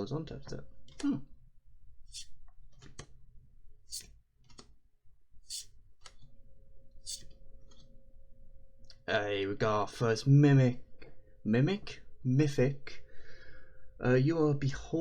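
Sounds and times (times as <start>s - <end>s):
trading cards sliding: 2.1s - 2.4s, 3.9s - 4.1s, 5.5s - 5.7s, 7.1s - 7.3s.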